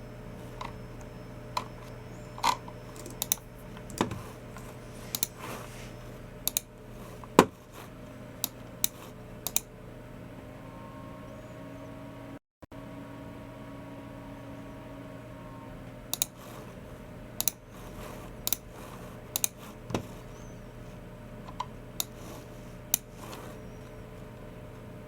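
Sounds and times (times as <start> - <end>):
steady low hum: 0.0 - 25.0
keyboard keys clicking: 0.6 - 5.4
mouse clicks: 19.4 - 19.6.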